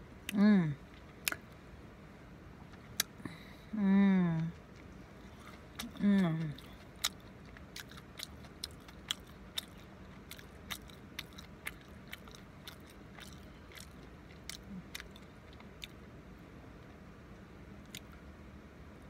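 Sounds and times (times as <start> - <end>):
low steady hum: 0.0 - 19.0
person chewing food: 0.2 - 1.6, 2.6 - 16.1, 17.8 - 18.2.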